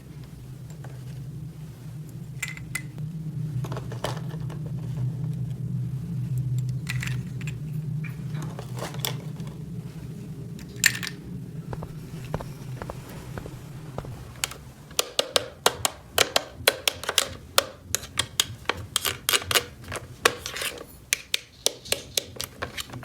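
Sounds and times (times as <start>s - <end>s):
steady low hum: 0.0s - 23.0s
plastic toy pieces clicking: 15.0s - 20.6s.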